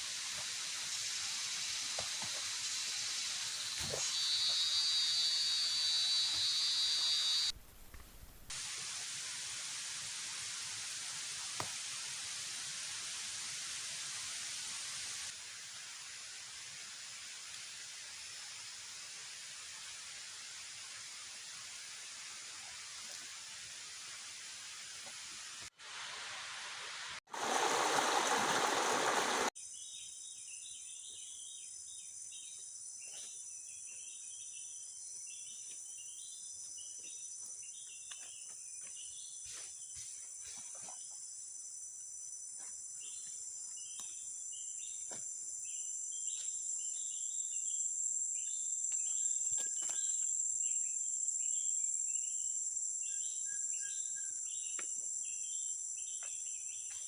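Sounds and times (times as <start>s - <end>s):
rapid insect chirping: 0.0s - 7.5s, 27.4s - 57.0s
insect drone: 0.0s - 7.6s, 8.6s - 30.8s, 38.9s - 57.0s
loud even hiss: 0.0s - 7.6s, 8.4s - 29.5s.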